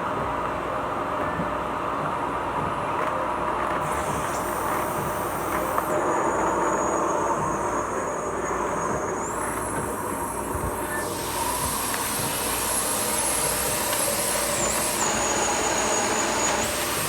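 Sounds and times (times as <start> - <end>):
thin high whine: 3.8 - 17.0
vacuum cleaner running: 3.8 - 17.0.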